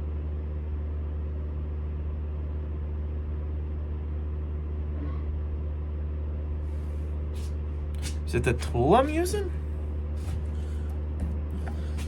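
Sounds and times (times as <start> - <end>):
lathe running with low hum: 6.5 - 12.0.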